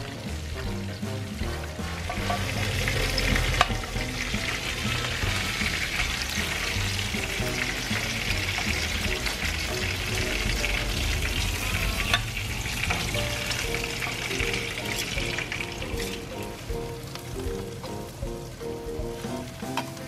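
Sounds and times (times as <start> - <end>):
background music: 0.0 - 20.0
shrimp sizzling in hot oil: 0.0 - 20.0
metal tongs clacking: 2.1 - 3.9.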